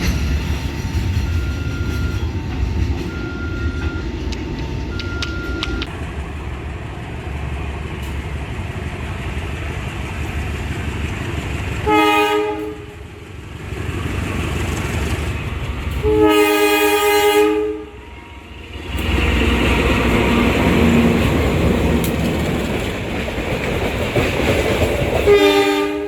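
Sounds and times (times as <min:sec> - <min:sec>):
train rumbling: 0:00.0 - 0:26.0
train horn blasts: 0:11.8 - 0:13.2, 0:16.0 - 0:18.6, 0:25.3 - 0:26.0.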